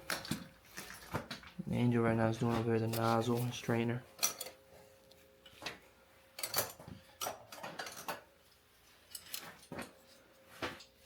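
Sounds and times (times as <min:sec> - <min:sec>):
faint steady hum: 0:00.0 - 0:11.0
hand tools clinking on metal: 0:02.8 - 0:04.6, 0:06.4 - 0:10.2.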